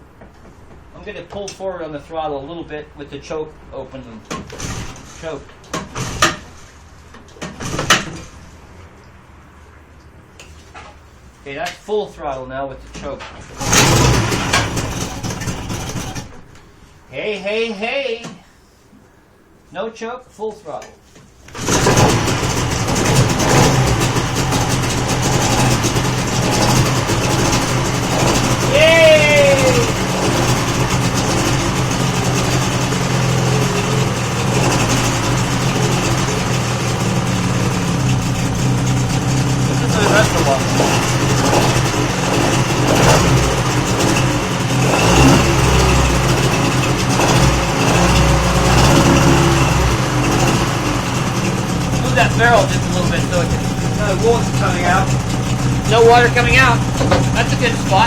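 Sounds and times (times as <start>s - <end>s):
outboard motor running: 13.6s - 16.5s, 21.6s - 58.0s.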